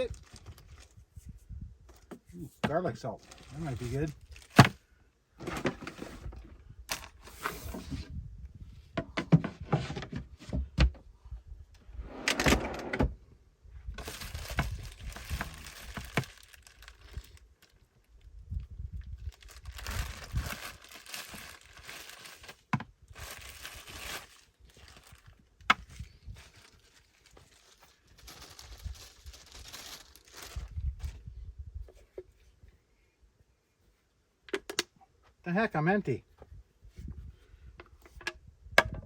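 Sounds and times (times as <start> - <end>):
rustling and shuffling of gear: 0.0 - 4.8, 14.0 - 17.9, 19.0 - 33.0
knocks and clunks of items: 1.9 - 3.6, 4.4 - 4.8, 5.4 - 8.1, 8.9 - 11.1, 37.8 - 39.0.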